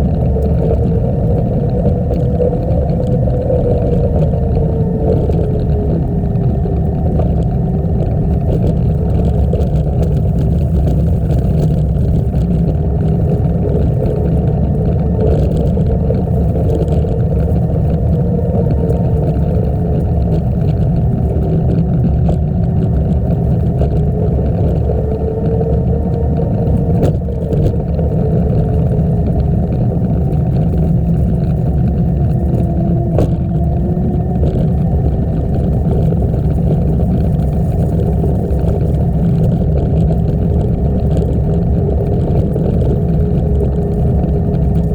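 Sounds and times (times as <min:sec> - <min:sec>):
faint hum: 0:00.0 - 0:44.9
wind rumbling on microphone: 0:00.0 - 0:44.9.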